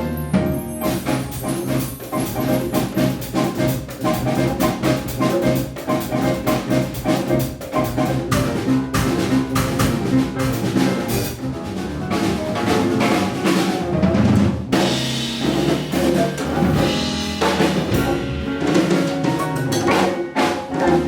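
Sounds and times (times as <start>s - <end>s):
hand percussion: 0.0s - 10.0s
bass: 0.0s - 21.0s
drum kit: 0.0s - 21.0s
jazz band playing: 0.0s - 21.0s
piano: 0.0s - 21.0s.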